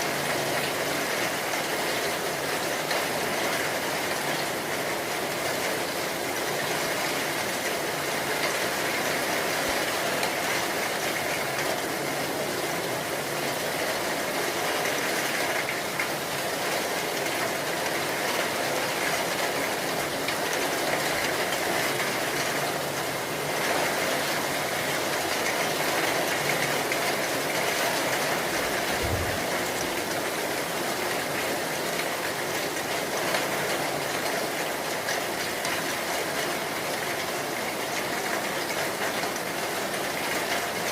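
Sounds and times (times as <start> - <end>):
heavy rain hissing: 25.9 - 31.6.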